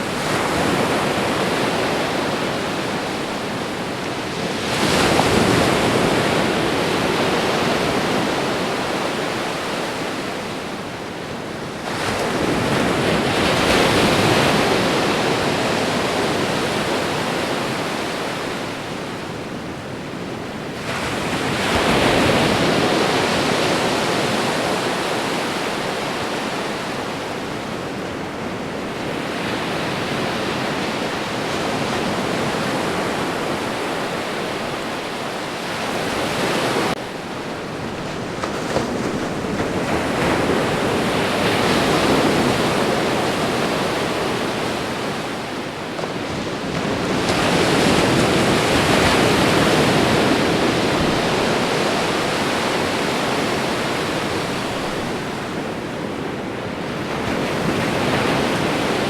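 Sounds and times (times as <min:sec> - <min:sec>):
ocean surf breaking: 0:20.8 - 0:59.0.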